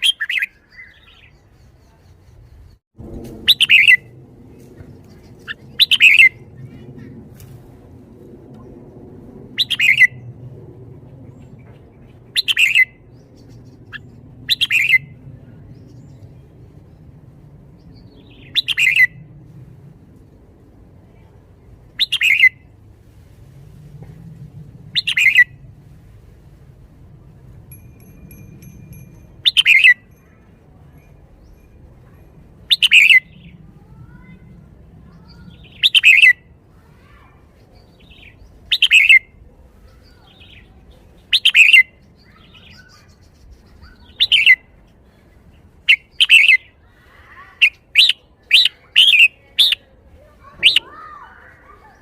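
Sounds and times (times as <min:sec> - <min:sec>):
bulbul singing: 0:03.5 - 0:04.1, 0:04.8 - 0:06.6, 0:09.6 - 0:10.3, 0:11.4 - 0:16.6, 0:27.7 - 0:33.6, 0:40.0 - 0:44.9, 0:45.9 - 0:46.8.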